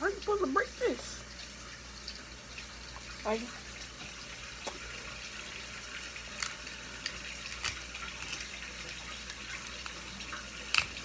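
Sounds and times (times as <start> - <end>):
crab shell cracking: 6.2 - 11.0.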